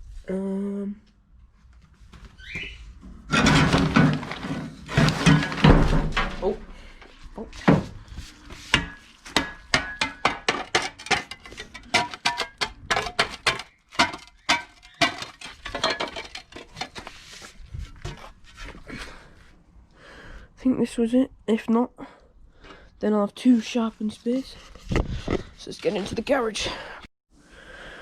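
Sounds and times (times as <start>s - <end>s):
garden tools knocking together: 3.3s - 6.7s, 8.8s - 17.0s.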